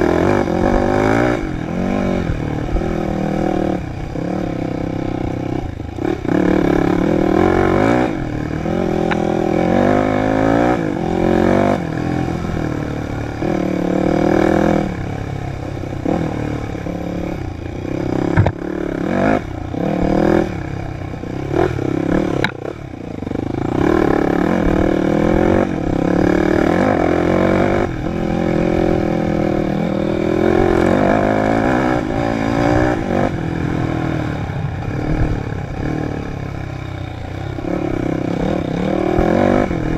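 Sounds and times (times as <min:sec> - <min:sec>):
dirt bike engine revving: 0:00.0 - 0:39.9
bike knocking on bumps: 0:18.3 - 0:18.6.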